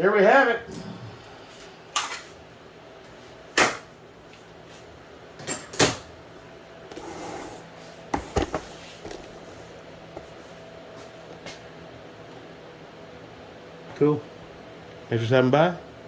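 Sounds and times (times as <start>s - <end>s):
objects being handled knocks: 8.1s - 9.3s.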